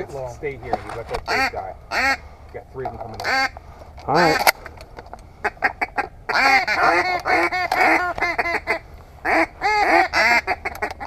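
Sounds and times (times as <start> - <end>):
duck call quacking: 1.2 - 2.3, 3.2 - 3.6, 5.4 - 11.0.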